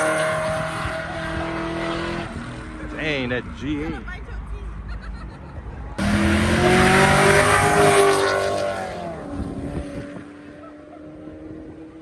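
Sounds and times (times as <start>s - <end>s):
car engine revving: 0.0s - 3.3s, 6.0s - 12.0s
loud exhaust rush: 0.0s - 3.8s, 5.9s - 12.0s.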